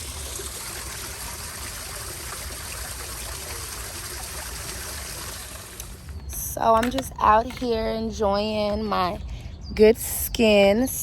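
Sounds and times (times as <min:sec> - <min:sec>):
running water trickling: 0:00.0 - 0:06.8.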